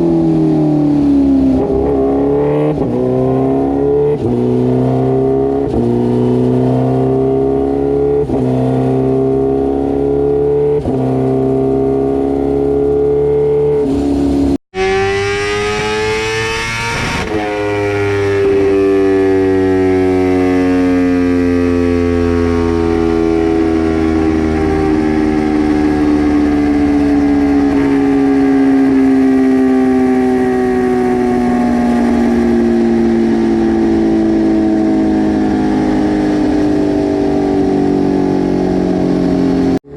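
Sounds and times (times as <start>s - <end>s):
motorcycle engine revving on dyno: 0.0s - 39.9s.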